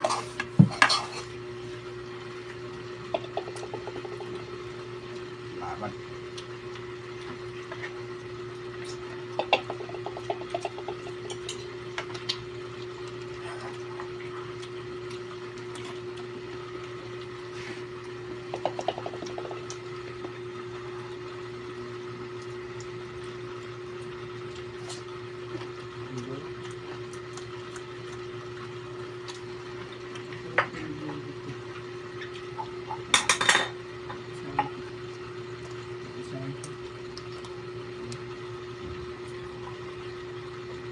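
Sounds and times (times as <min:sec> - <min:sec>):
dishes and utensils clinking: 0:33.1 - 0:33.8.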